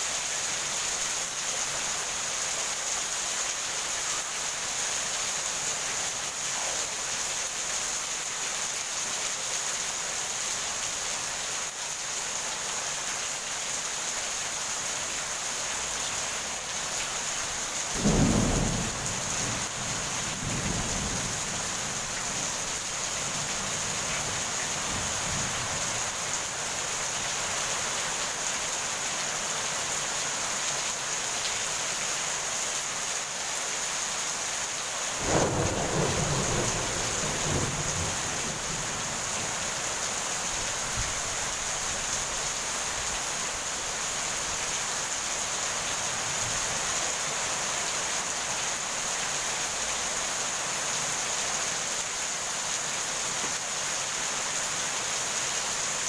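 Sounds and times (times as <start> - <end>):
heavy rain falling: 0.0 - 56.0
thunderclap rumbling: 17.9 - 26.4, 35.2 - 41.3.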